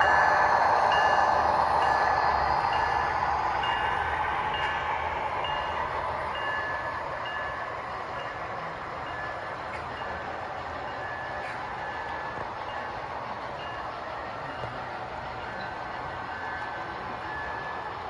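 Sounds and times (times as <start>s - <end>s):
model train wheels rumbling: 0.0s - 18.0s.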